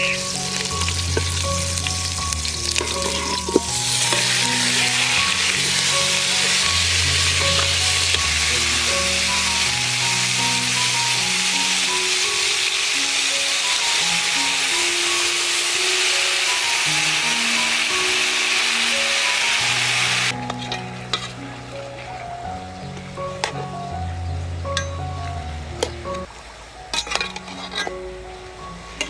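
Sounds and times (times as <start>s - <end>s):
background music with bass: 0.0s - 13.0s, 19.4s - 26.3s
duck sizzling in oil: 0.0s - 22.2s
utensils clicking on pot: 0.4s - 6.8s.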